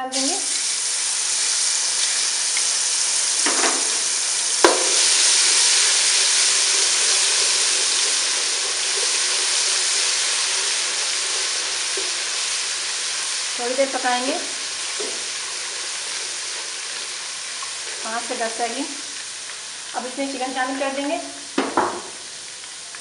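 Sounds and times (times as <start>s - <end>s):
garlic paste sizzling in oil: 0.0s - 23.0s
sharp knock: 4.6s - 5.0s.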